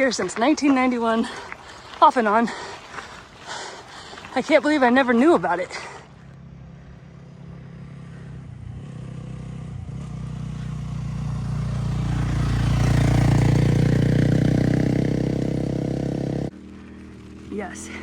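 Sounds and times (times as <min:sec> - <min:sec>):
vehicle engine passing by: 0:05.3 - 0:18.0.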